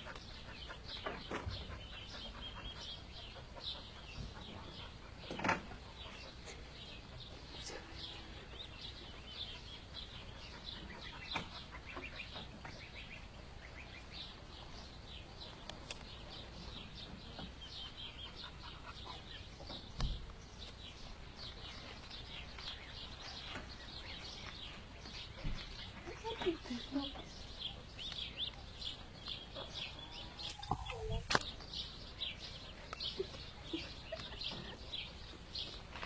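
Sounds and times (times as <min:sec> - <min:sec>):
duckling peeping: 0:08.5 - 0:14.4, 0:27.4 - 0:35.2.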